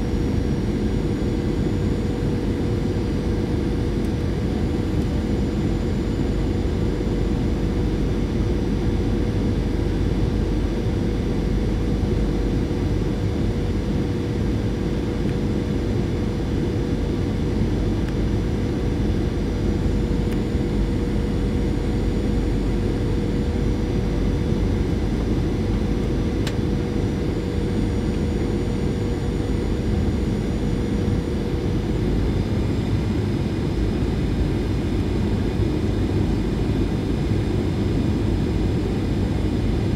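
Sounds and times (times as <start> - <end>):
jet engines droning: 0.0 - 39.9.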